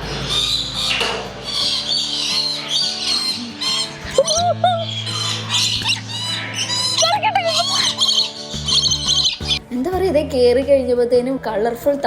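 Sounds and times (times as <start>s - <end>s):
parrots chirping and squawking: 0.0s - 9.6s
background music with held notes: 0.0s - 12.0s.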